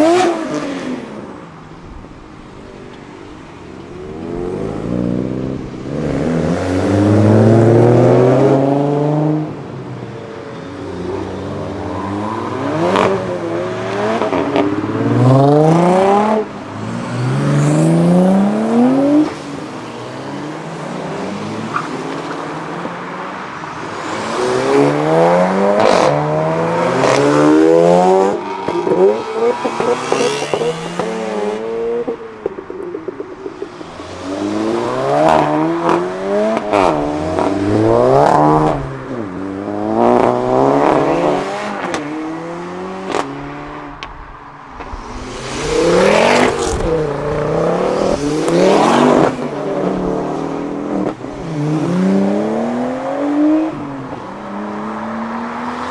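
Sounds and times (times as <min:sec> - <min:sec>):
sports cars accelerating hard: 0:00.0 - 0:01.6, 0:03.5 - 0:55.9.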